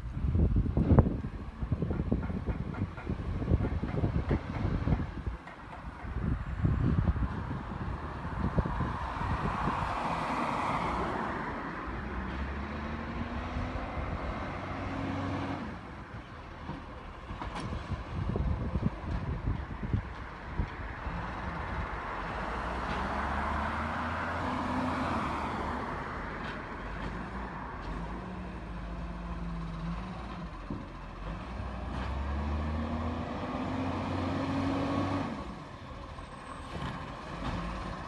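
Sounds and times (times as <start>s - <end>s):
truck engine revving: 28.0s - 38.0s.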